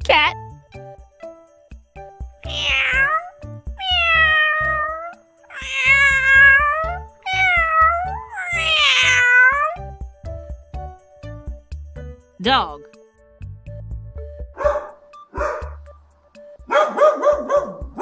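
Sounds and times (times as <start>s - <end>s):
background music: 0.0s - 18.0s
cat meowing: 2.4s - 9.9s.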